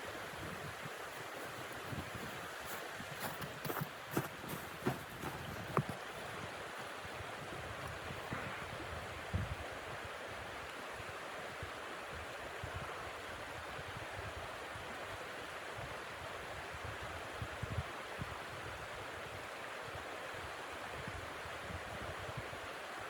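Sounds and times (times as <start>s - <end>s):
wind gusts buffeting microphone: 0.0s - 10.0s.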